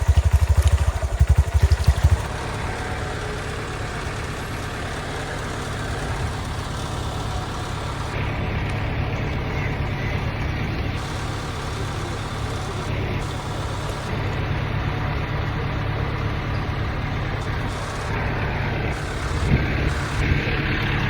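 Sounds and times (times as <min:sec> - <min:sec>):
low vehicle engine hum: 0:00.0 - 0:21.0.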